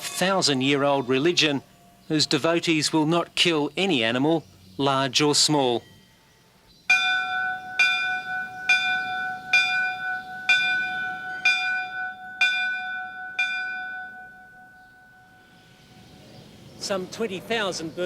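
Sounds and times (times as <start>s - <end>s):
temple bell strikes: 6.9s - 16.0s.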